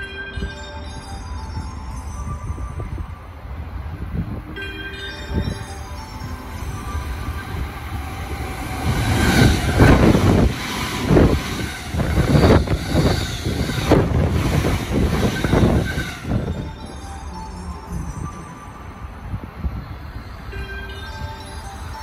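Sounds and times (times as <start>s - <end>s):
electric train passing at speed: 0.0s - 22.0s
train wheels clacking: 5.3s - 17.4s.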